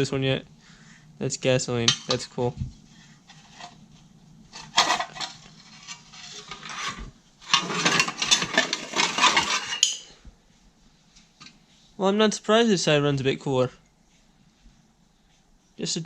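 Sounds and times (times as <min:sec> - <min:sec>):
sheet metal scraping and rattling: 0:04.5 - 0:10.1.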